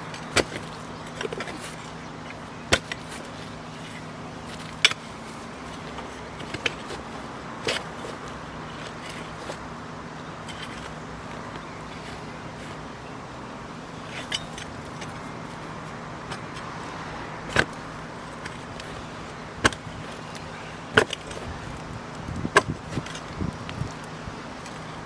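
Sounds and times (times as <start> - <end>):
digging tool chopping into soil: 0.2 - 3.3, 17.5 - 23.9.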